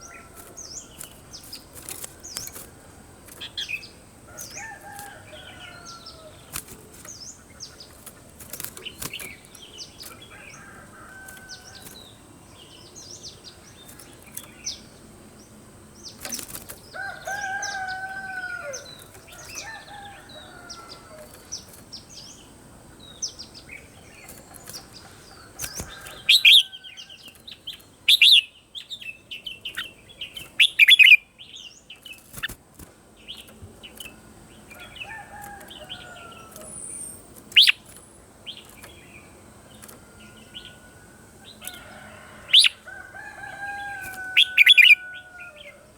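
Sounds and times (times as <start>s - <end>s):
bird singing chirpy phrases: 3.3s - 40.8s.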